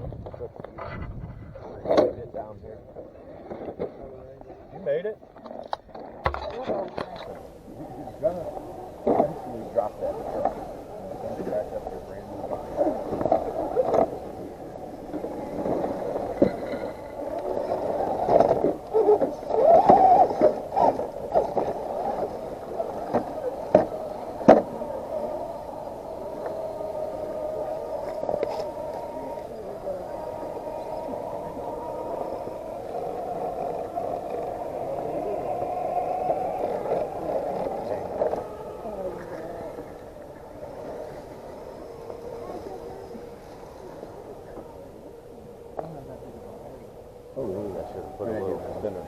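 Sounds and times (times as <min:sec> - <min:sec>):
small electric motors whining: 0:05.4 - 0:49.0.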